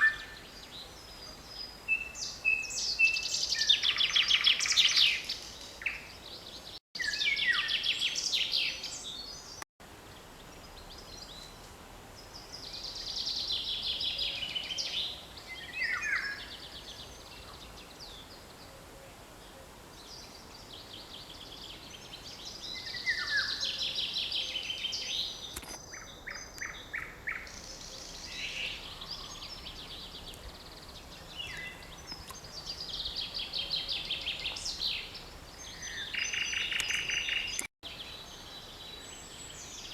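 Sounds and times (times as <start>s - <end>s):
songbird trills: 0.0s - 9.6s, 20.1s - 39.9s.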